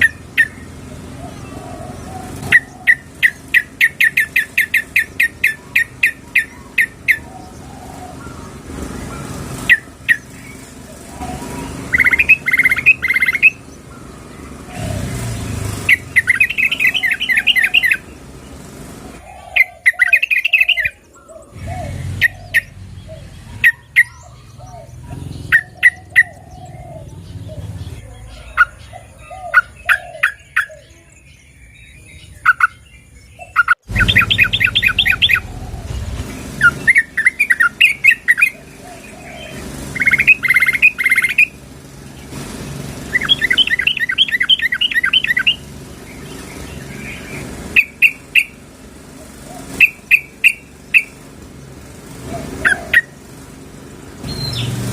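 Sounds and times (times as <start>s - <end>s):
bulbuls calling: 0.0s - 54.9s.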